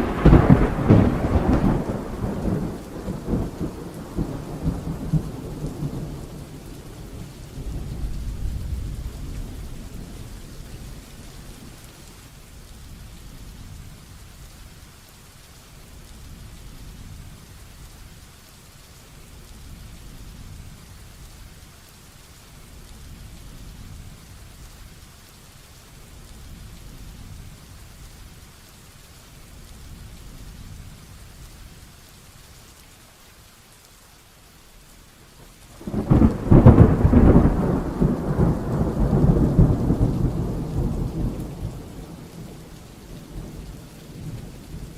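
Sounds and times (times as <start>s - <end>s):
loud close thunderclap: 0.0s - 10.2s, 35.8s - 44.9s
rolling low thunder: 0.0s - 11.8s, 35.8s - 44.9s
heavy rain falling: 0.0s - 44.9s.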